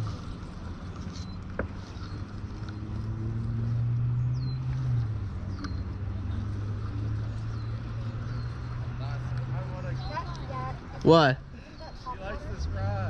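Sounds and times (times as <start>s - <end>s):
motor droning: 0.0s - 10.6s.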